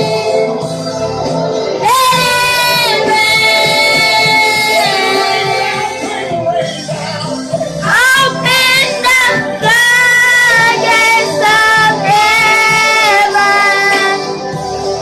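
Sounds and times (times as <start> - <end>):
low instrumental backing: 0.0 - 15.0
woman singing with vibrato: 1.8 - 6.3, 7.8 - 14.4.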